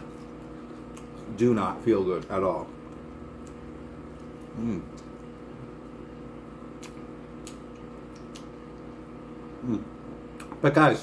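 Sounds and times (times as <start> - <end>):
person chewing food: 0.0 - 1.3, 2.8 - 9.0
background hum: 0.0 - 11.0
person humming mm: 4.5 - 5.0, 9.6 - 9.9.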